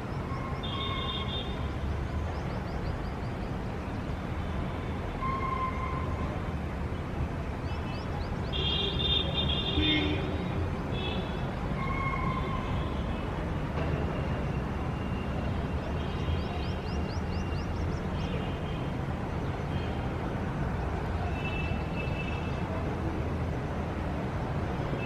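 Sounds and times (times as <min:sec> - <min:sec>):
city traffic rumble: 0:00.0 - 0:25.0
birds chirping: 0:16.1 - 0:18.8.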